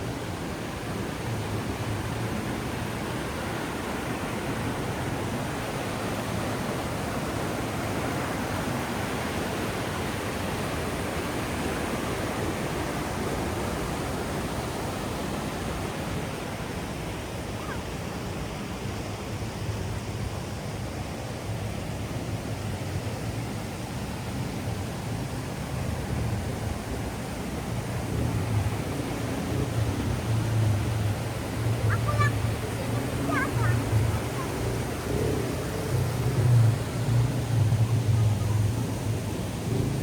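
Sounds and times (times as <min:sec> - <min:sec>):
waterfall roaring: 0:24.7 - 0:40.0.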